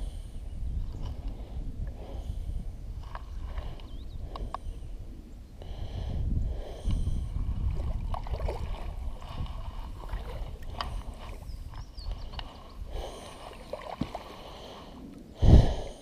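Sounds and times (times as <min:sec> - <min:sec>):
low rumble of wind: 0:00.0 - 0:16.0
water sounds: 0:07.4 - 0:15.8.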